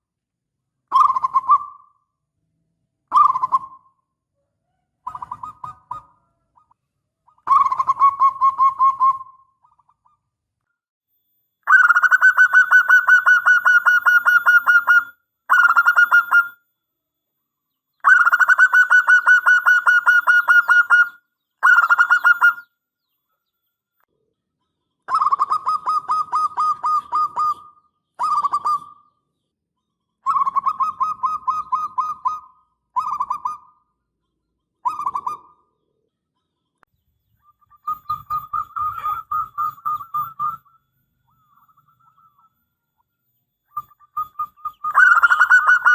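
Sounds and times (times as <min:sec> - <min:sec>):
dove staccato cooing: 0:00.9 - 0:02.0, 0:05.0 - 0:10.1, 0:11.7 - 0:16.6, 0:18.0 - 0:22.6, 0:25.1 - 0:29.0, 0:34.8 - 0:35.7, 0:37.7 - 0:40.7, 0:43.8 - 0:45.9.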